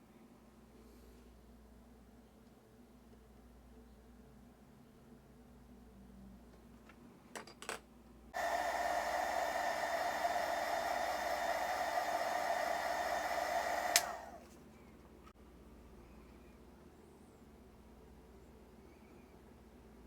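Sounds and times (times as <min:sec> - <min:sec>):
blower switch click: 0:08.4 - 0:14.4
hot-air blower running: 0:08.4 - 0:14.5.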